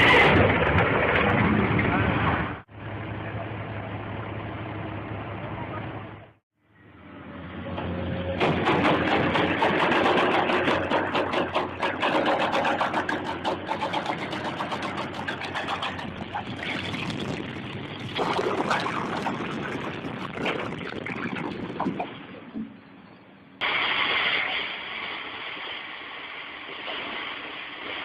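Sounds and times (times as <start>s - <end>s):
rattling and clanking knocks: 8.4s - 16.5s.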